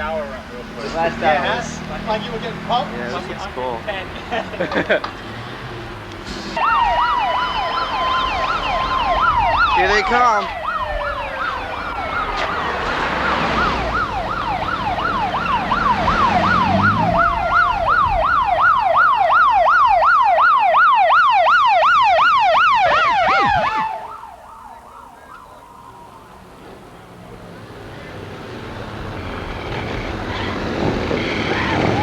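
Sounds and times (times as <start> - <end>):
vehicle siren yelping: 6.5 - 26.6, 30.6 - 32.0.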